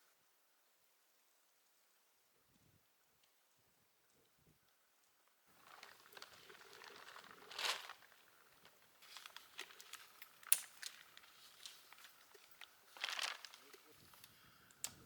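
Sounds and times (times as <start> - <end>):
rustling and crinkling: 5.5 - 15.0.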